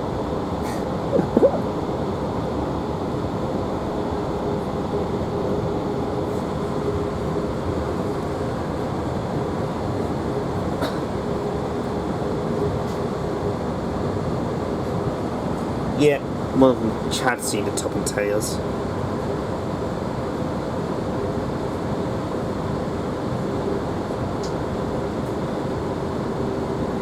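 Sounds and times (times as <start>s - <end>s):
steady hum: 1.0s - 2.7s.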